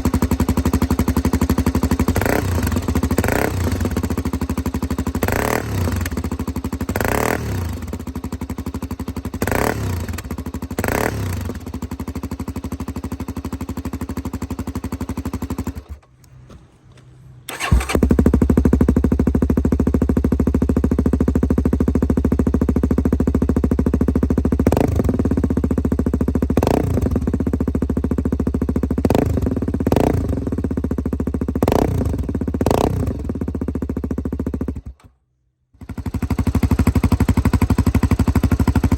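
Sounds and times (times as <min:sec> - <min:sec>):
motorcycle engine idling: 0:00.0 - 0:16.1, 0:17.5 - 0:35.1, 0:35.8 - 0:38.9
engine throttle blips: 0:17.5 - 0:18.1.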